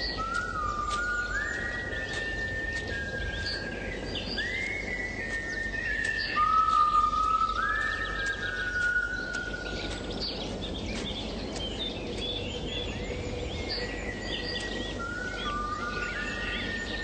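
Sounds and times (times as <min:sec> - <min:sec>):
whistle-like tones: 0:00.0 - 0:09.7
birds chirping: 0:00.0 - 0:17.0
steady background hiss: 0:00.0 - 0:17.0.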